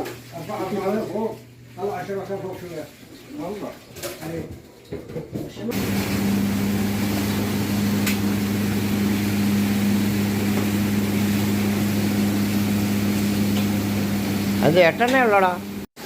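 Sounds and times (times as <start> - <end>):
machine hum: 5.7 - 15.9.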